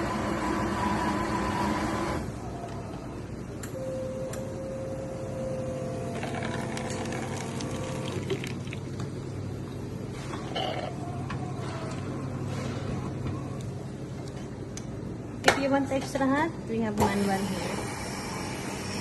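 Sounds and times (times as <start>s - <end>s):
coffee machine whirring: 0.0s - 3.1s, 5.6s - 9.1s, 17.0s - 19.0s
coffee machine hum with whine: 0.0s - 19.0s.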